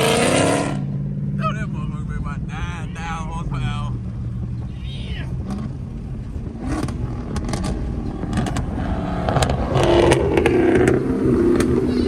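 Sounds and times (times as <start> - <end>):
car engine idling: 0.6 - 12.0.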